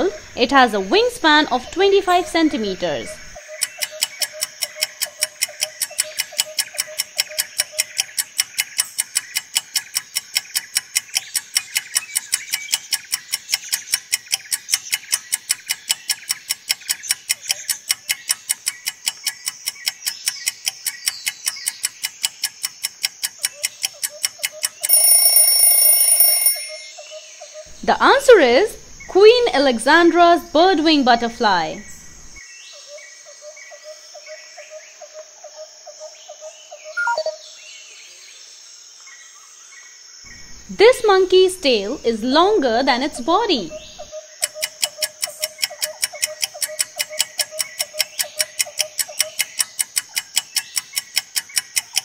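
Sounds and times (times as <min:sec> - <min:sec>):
clock ticking rapidly: 0:01.2 - 0:26.9, 0:40.3 - 0:52.0
alarm clock bell ringing: 0:24.6 - 0:27.0.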